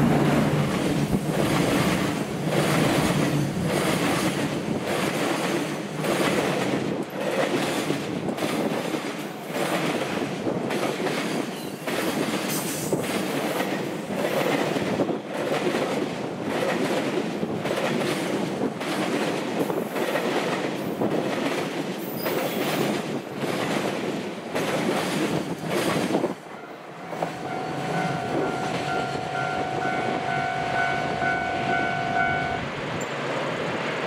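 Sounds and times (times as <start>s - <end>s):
freight train wagons rumbling: 0.0s - 34.0s
steady ringing tone: 27.3s - 32.6s.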